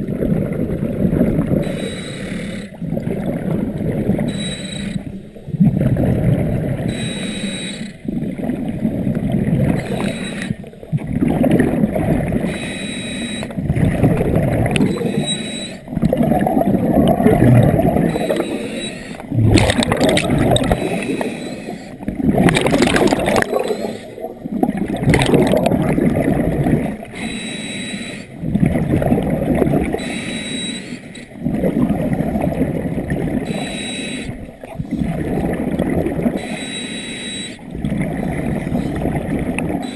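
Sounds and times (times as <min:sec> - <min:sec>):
gurgling exhaled bubbles: 0:00.0 - 0:01.7, 0:02.7 - 0:04.3, 0:05.0 - 0:06.9, 0:08.0 - 0:12.5, 0:13.5 - 0:27.1, 0:28.4 - 0:30.0, 0:31.4 - 0:33.6, 0:34.3 - 0:36.4, 0:37.7 - 0:39.9.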